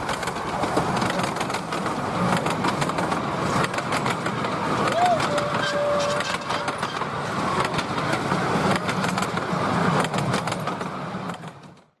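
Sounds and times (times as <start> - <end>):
miniature steam train rumbling: 0.0 - 12.0
train whistle: 4.9 - 6.8.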